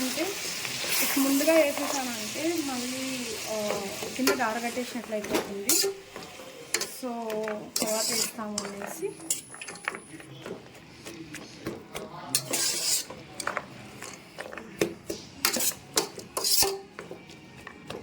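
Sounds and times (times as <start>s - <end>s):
spoon scraping a cooking pot: 5.6s - 18.0s.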